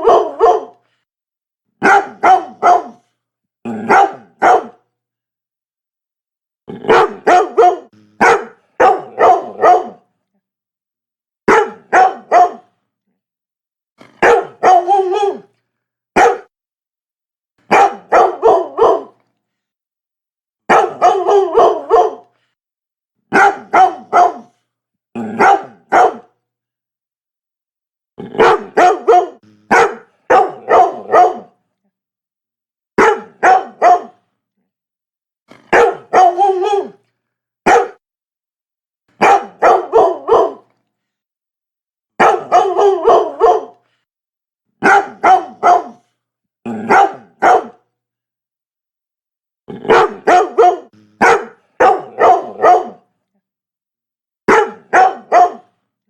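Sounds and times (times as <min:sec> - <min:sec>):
dog barking in bursts: 0:00.0 - 0:00.8, 0:01.8 - 0:03.1, 0:03.7 - 0:04.8, 0:06.8 - 0:10.0, 0:11.5 - 0:12.7, 0:14.0 - 0:15.5, 0:16.2 - 0:16.5, 0:17.7 - 0:19.2, 0:20.7 - 0:22.3, 0:23.3 - 0:24.6, 0:25.2 - 0:26.4, 0:28.3 - 0:31.6, 0:33.0 - 0:34.2, 0:35.5 - 0:37.0, 0:37.7 - 0:38.0, 0:39.2 - 0:40.7, 0:42.2 - 0:43.8, 0:44.8 - 0:46.1, 0:46.7 - 0:47.9, 0:49.8 - 0:53.1, 0:54.5 - 0:55.7.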